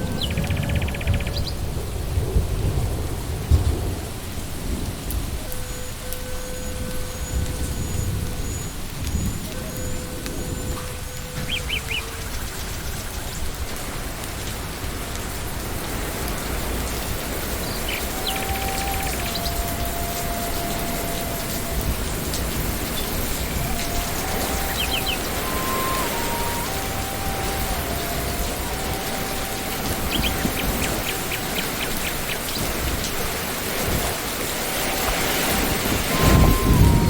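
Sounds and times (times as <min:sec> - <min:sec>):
low thunder rumble: 0:00.0 - 0:37.0
rain on leaves and ground: 0:00.0 - 0:37.0
faint high chirps: 0:17.6 - 0:32.8.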